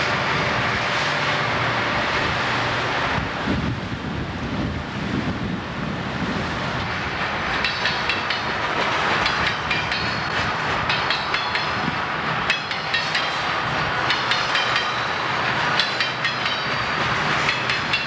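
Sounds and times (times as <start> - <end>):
train wheels clicking over rail joints: 6.6 - 18.0.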